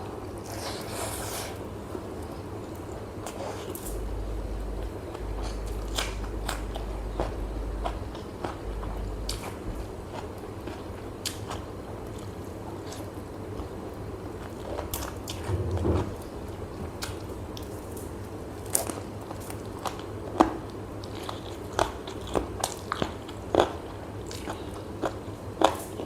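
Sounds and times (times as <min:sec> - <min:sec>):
low hum: 0:03.7 - 0:12.2, 0:15.0 - 0:17.8.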